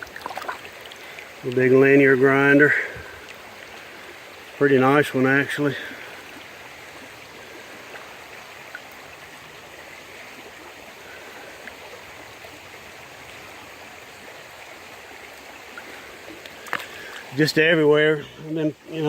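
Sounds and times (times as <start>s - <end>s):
stream water flowing: 0.0s - 19.0s
faint small clicks: 15.3s - 17.3s.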